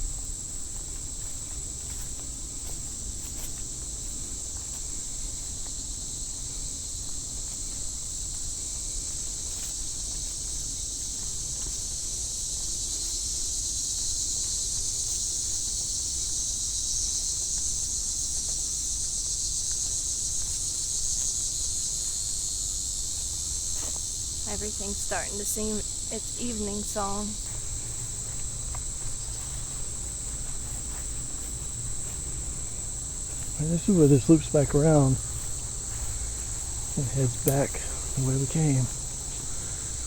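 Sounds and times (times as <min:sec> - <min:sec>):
insects trilling: 0:00.0 - 0:40.0.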